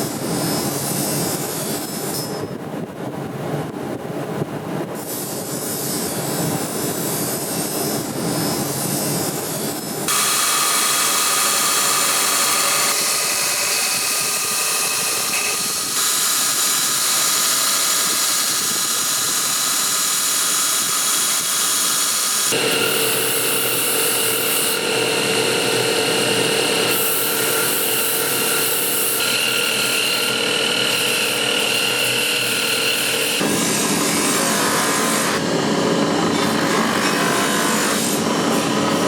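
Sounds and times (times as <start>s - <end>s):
power grinder on metal: 10.1s - 39.0s.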